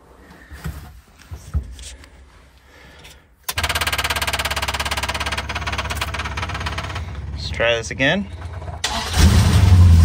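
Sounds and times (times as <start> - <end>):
car engine starting: 5.0 - 10.0.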